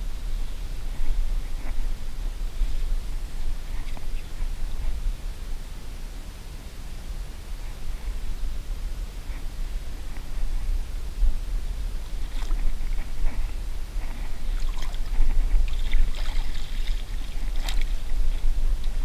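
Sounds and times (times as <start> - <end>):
steady low rumble: 0.0 - 19.0
creek water sloshing and splashing: 14.0 - 19.0.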